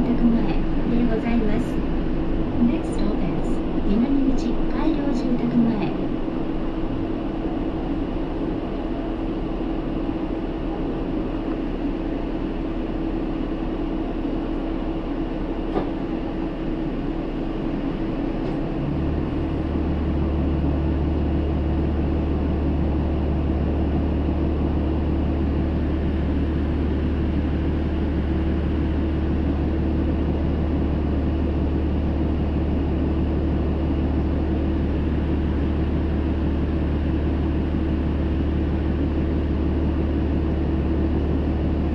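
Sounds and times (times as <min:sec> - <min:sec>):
road noise: 0:00.0 - 0:12.6
bus diesel engine running: 0:00.0 - 0:41.9
deep engine drone: 0:00.0 - 0:41.9.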